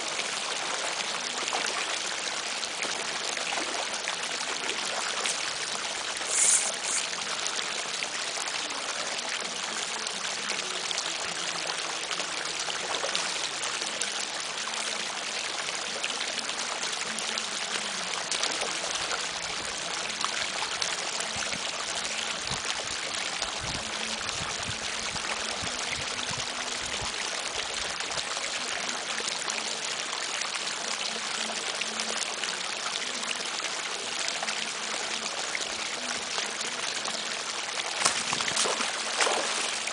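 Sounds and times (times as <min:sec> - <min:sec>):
stream water flowing: 0:00.0 - 0:39.9
loud high hiss: 0:06.2 - 0:07.1.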